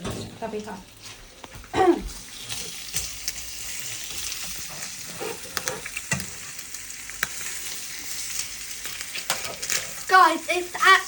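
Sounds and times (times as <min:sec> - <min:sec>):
eggs and bacon frying in a pan: 0:00.4 - 0:11.0
crackling pops: 0:05.0 - 0:10.1.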